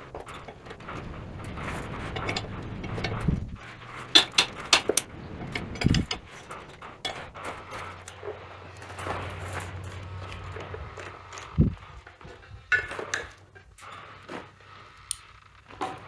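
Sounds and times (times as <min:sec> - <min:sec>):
hand tools clinking on metal: 0:00.1 - 0:11.6.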